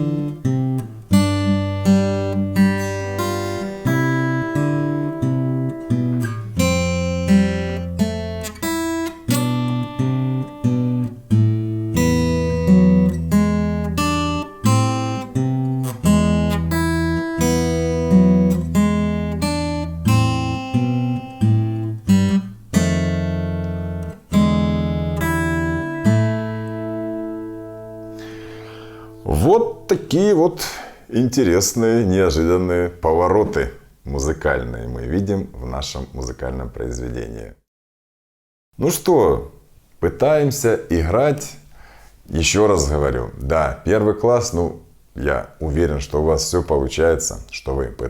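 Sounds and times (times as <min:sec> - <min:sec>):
fingerpicked acoustic guitar: 0:00.0 - 0:30.4.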